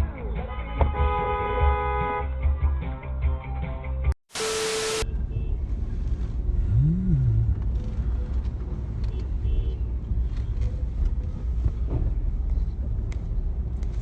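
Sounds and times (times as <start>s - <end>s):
hiss with steady tone: 4.3s - 5.0s
moving road vehicle rumble: 5.0s - 14.0s.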